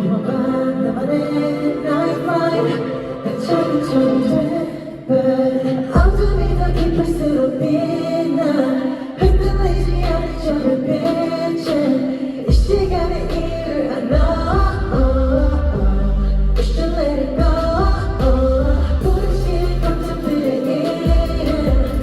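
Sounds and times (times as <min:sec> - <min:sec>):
person singing live: 0:00.0 - 0:22.0
backing track with deep bass: 0:06.0 - 0:07.5, 0:09.2 - 0:11.8, 0:12.5 - 0:22.0.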